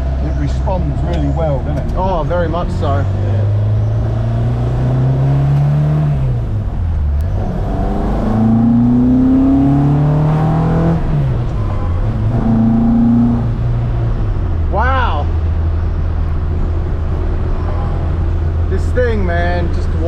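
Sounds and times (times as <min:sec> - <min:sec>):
rally car engine accelerating: 0:00.0 - 0:14.7.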